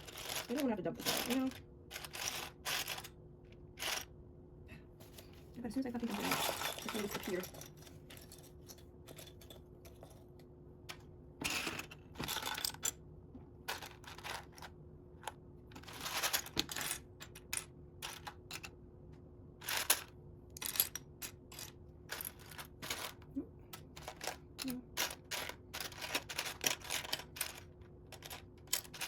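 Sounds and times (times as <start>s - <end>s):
plastic bricks rattling: 0.0s - 3.1s, 6.0s - 8.4s, 15.8s - 18.7s, 23.8s - 29.0s.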